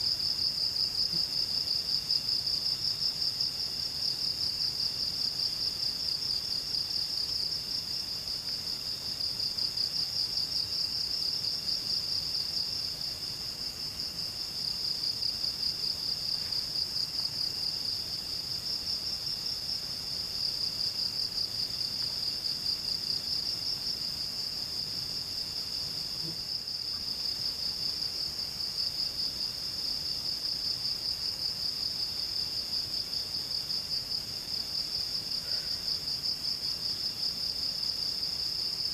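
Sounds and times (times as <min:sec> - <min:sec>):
fainter insect call: 0:00.0 - 0:38.9.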